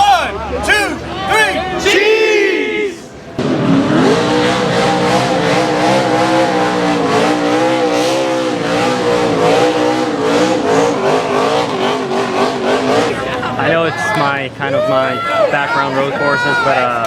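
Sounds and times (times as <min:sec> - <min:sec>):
race car engine at high revs: 0:03.2 - 0:14.6.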